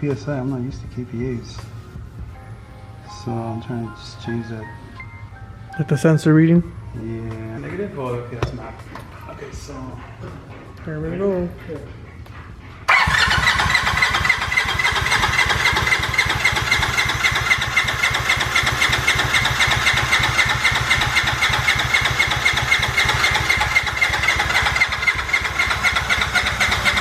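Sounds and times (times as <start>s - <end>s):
engine cranking without firing: 12.9s - 27.0s
starter whine: 12.9s - 27.0s.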